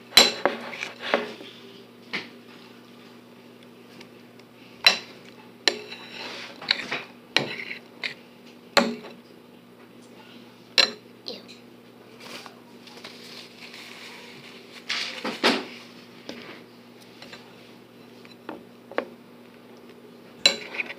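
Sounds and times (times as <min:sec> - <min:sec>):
utensil clinking against bowl: 0:04.8 - 0:08.2, 0:20.4 - 0:20.9.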